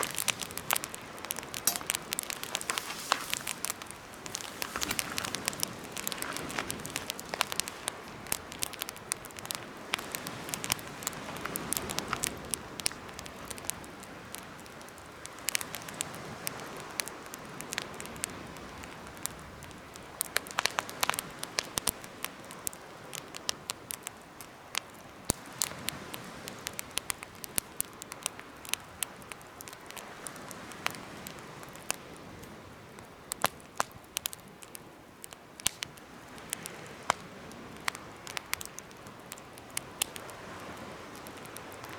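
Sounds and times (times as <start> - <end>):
hiss of flame: 0.0 - 8.0
campfire crackling: 0.0 - 41.9.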